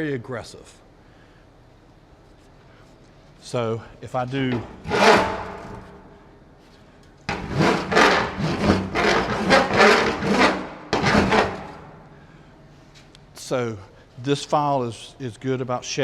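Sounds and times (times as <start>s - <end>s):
file rasping across aluminum: 4.5s - 6.0s, 7.3s - 11.8s.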